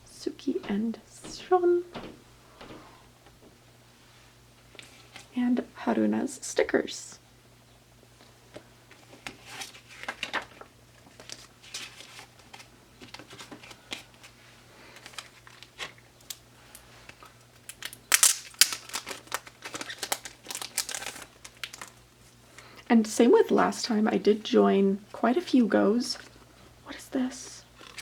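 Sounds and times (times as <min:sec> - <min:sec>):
packaging crinkling: 0:09.2 - 0:16.4, 0:17.1 - 0:22.0, 0:27.8 - 0:28.0.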